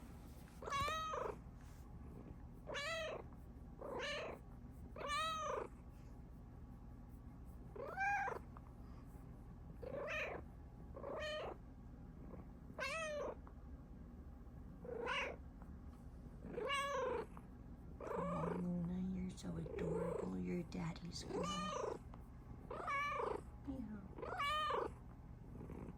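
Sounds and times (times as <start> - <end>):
cat meowing: 0.6 - 1.3, 5.0 - 5.7, 16.6 - 17.2, 21.3 - 22.0, 22.7 - 23.4, 24.2 - 24.9.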